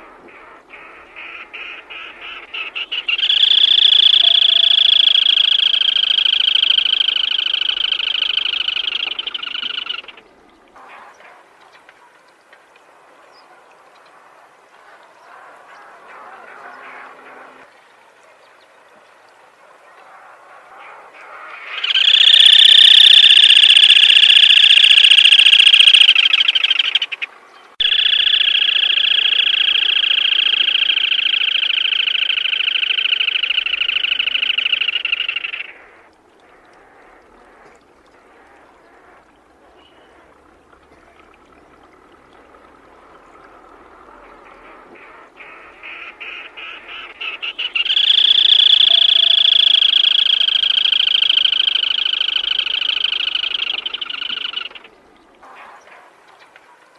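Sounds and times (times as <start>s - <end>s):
bird rattling trills: 3.0s - 10.2s, 21.8s - 27.2s, 27.8s - 35.6s, 47.7s - 54.8s.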